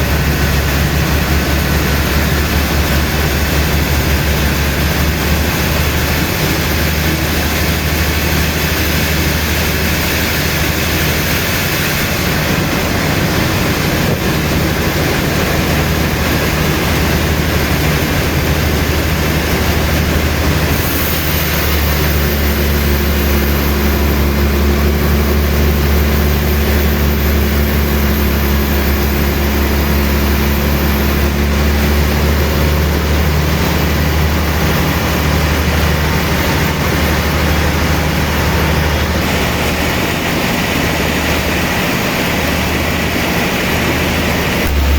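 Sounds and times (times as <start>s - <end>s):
sawmill machinery rumbling: 0.0s - 44.9s
humming tone: 44.6s - 44.9s.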